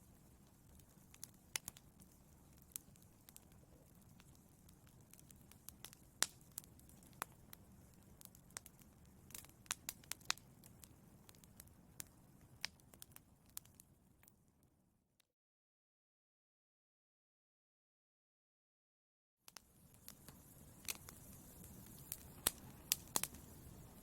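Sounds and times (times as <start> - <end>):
low rumble of flames: 0.0 - 13.9, 19.6 - 24.0
wood fire crackling: 0.0 - 14.4, 19.5 - 24.0.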